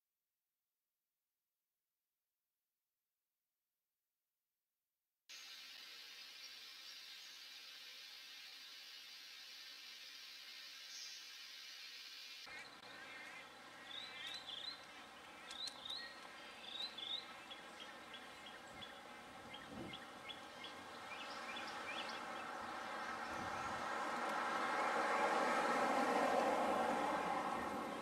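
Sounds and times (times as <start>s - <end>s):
bird chirps: 10.8s - 23.8s
bird ticking notes: 12.5s - 23.2s.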